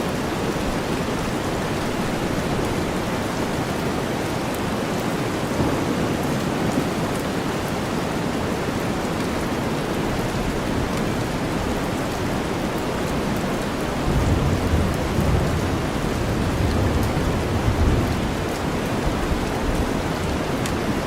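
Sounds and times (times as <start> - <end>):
steady rain: 0.0 - 21.0
low rumble of thunder: 5.5 - 7.2, 14.0 - 20.0.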